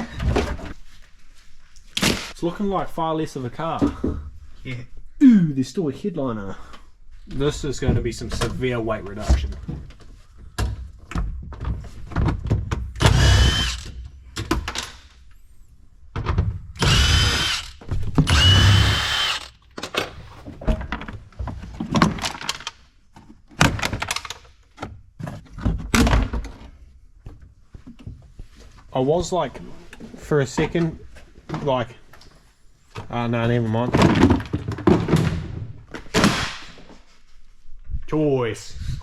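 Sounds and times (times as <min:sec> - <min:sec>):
power tool whirring: 0:13.0 - 0:14.0, 0:16.8 - 0:19.6.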